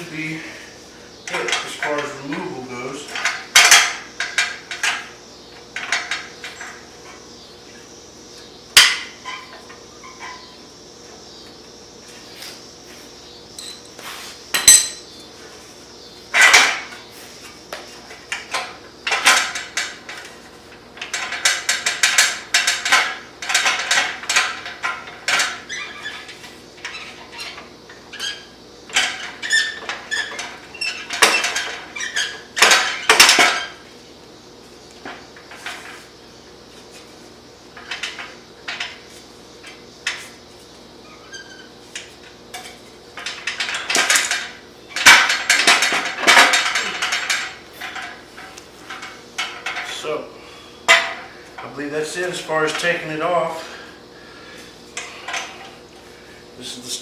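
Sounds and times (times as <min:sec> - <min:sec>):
metallic clanks of hand tools: 0:14.5 - 0:15.1.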